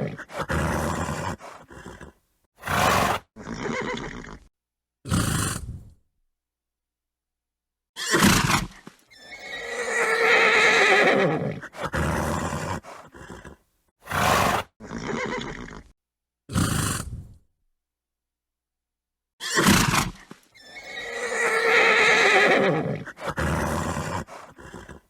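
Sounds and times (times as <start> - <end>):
horse snorting: 0.0 - 4.5, 5.1 - 6.0, 8.1 - 15.9, 16.5 - 17.4, 19.5 - 25.0
horse whinnying: 0.0 - 4.5, 8.0 - 15.9, 19.4 - 25.0.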